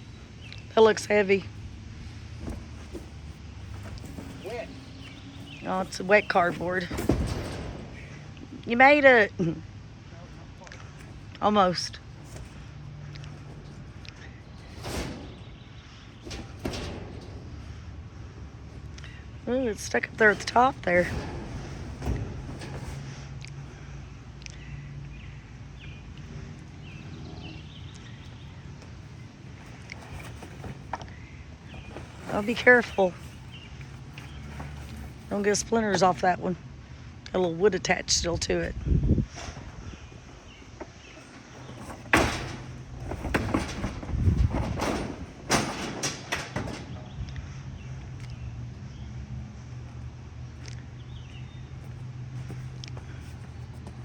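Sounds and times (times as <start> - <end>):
scraps thudding into dumpster: 1.4 - 9.2, 10.8 - 24.8, 25.7 - 36.4, 39.2 - 48.5.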